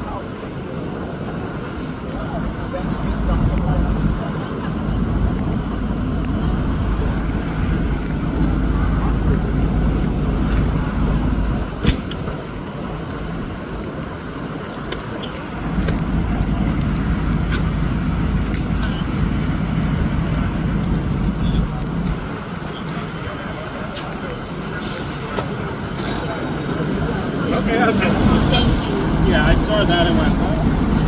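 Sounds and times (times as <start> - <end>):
road and traffic noise: 0.0 - 31.0
vehicle engine running: 2.2 - 13.5, 15.5 - 23.8.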